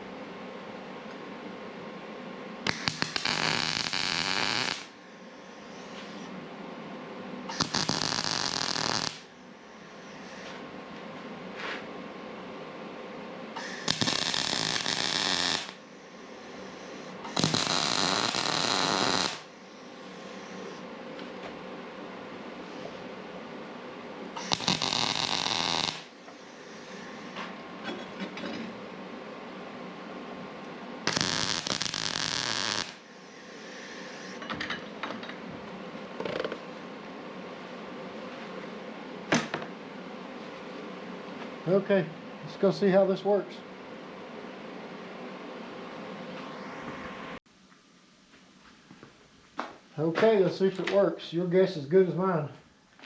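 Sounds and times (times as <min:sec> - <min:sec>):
arc welding bursts: 0:02.7 - 0:05.0, 0:07.5 - 0:09.3, 0:13.6 - 0:20.8, 0:24.4 - 0:27.4, 0:31.1 - 0:34.4.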